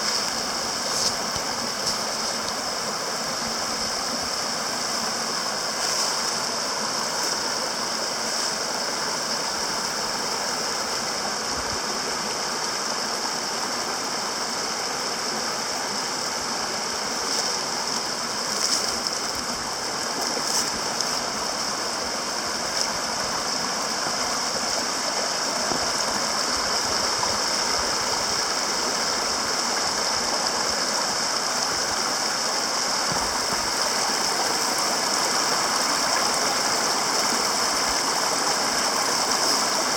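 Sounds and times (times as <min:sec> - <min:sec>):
creek water rushing: 0:00.0 - 0:39.9.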